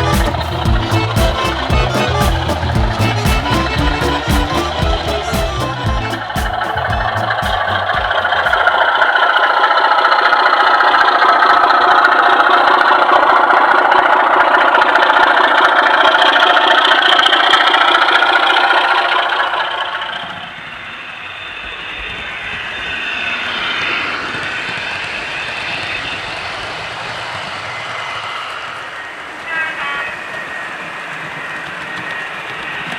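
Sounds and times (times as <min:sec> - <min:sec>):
diesel engine sound from small speaker: 0:00.0 - 0:08.6.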